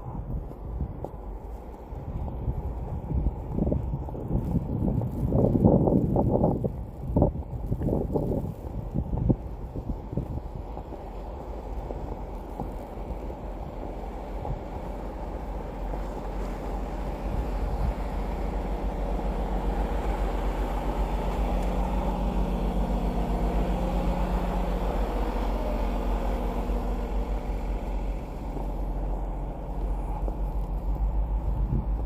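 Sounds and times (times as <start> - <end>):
motor vehicle passing by: 14.4 - 32.0.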